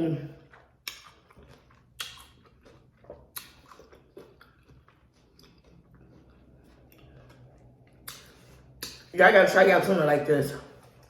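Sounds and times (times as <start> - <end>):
crunchy taco chewing: 0.2 - 9.1.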